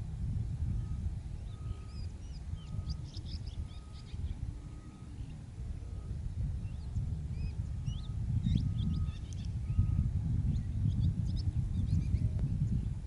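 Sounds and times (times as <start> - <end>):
wind rumble on microphone: 0.0 - 13.0
birds chirping: 0.7 - 13.0
steady repeating bird note: 0.8 - 10.1.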